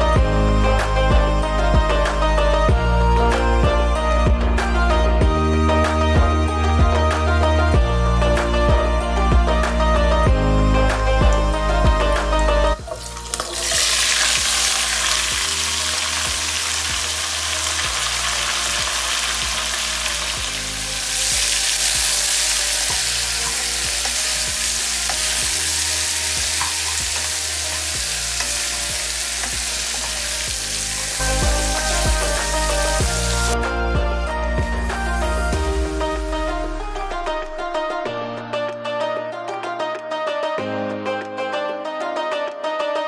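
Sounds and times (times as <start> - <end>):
background music: 0.0 - 43.0
food sizzling in hot oil: 12.7 - 33.6.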